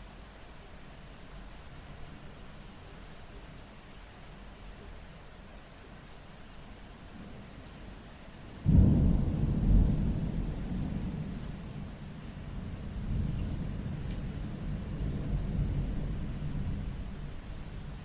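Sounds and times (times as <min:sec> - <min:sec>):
rain falling: 0:00.0 - 0:18.0
thunder clap and rumble: 0:08.6 - 0:17.4.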